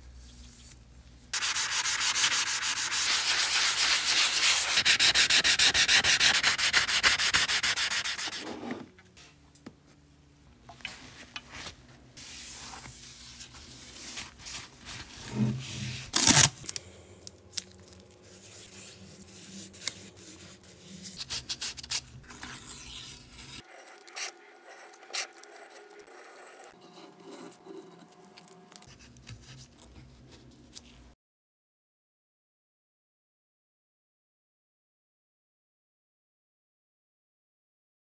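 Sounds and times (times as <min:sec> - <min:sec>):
tape crinkling and rubbing: 0:12.8 - 0:26.1
tape tearing: 0:16.1 - 0:16.8.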